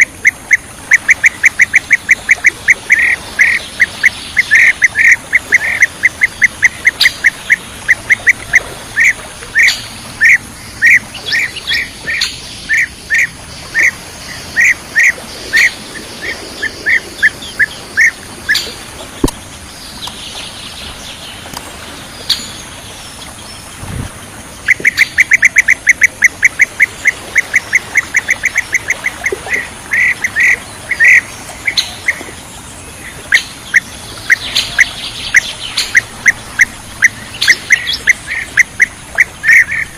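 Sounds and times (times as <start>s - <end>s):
bird chirping calls: 0.0s - 21.6s, 22.2s - 39.9s.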